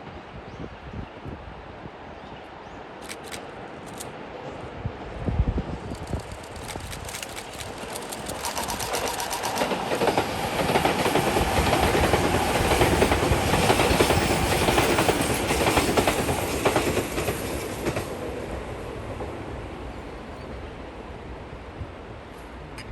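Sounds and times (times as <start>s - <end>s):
wheels clicking over rail joints: 5.9s - 18.0s
electric train passing: 5.9s - 22.1s.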